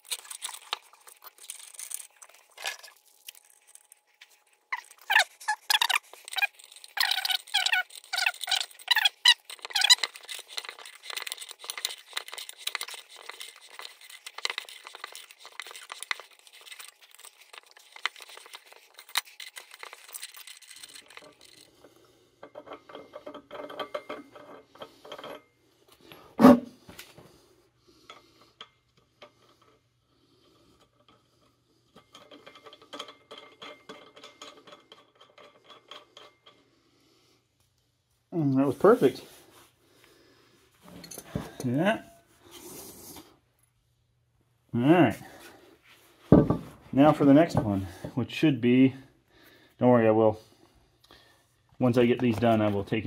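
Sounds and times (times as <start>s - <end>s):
metal tools handled: 40.8s - 41.8s.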